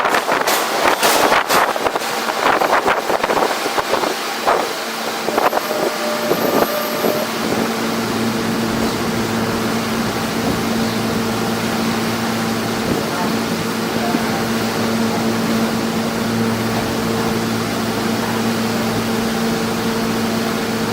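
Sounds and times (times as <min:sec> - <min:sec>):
wind buffeting microphone: 0:00.0 - 0:18.2
train clatter: 0:00.0 - 0:20.9
brief squeals: 0:05.3 - 0:07.6.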